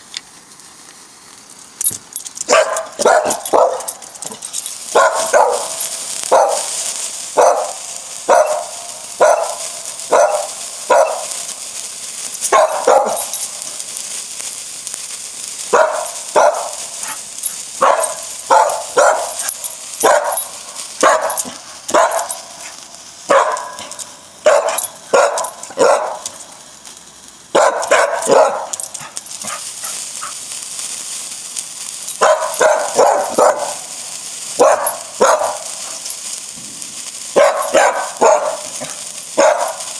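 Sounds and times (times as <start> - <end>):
steady high hiss: 0.0 - 39.9
dog barking: 2.5 - 4.0, 4.9 - 6.7, 7.4 - 11.4, 12.5 - 13.3, 15.7 - 17.2, 17.8 - 19.4, 20.0 - 20.4, 21.0 - 22.4, 23.3 - 23.8, 24.4 - 26.3, 27.6 - 28.8, 32.2 - 33.9, 34.6 - 35.8, 37.4 - 39.9.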